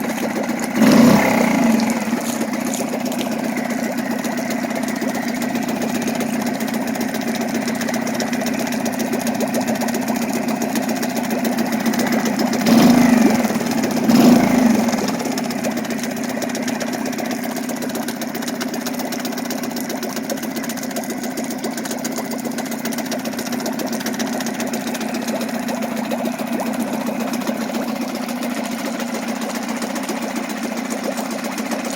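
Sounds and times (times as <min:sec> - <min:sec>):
outboard motor idling and revving: 0:00.0 - 0:31.9.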